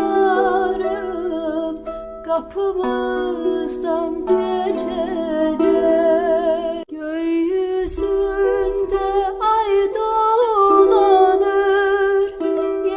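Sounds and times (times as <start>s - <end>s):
person singing long wavering notes: 0.0s - 12.9s.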